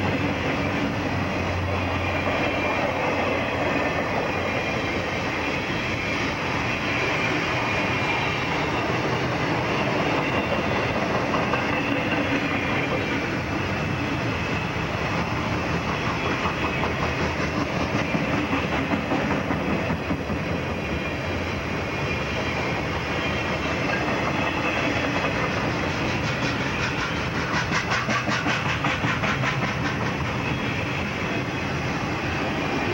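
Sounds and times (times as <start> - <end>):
train wheels rumbling on rail: 0.0 - 32.9
wheels clacking over rail joints: 8.7 - 21.0, 22.1 - 31.1.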